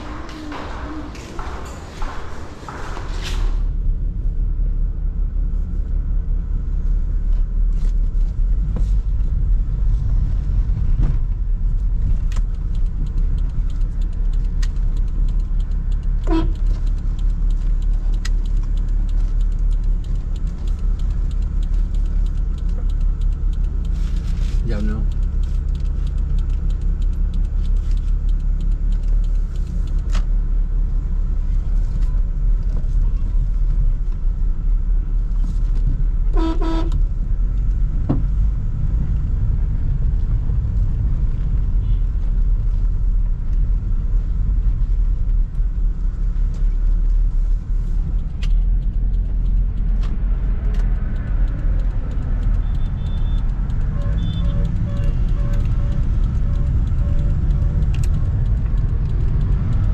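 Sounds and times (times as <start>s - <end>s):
car engine and road noise: 0.0s - 59.9s
car horn toot: 16.2s - 16.6s, 36.3s - 37.0s, 52.9s - 57.3s.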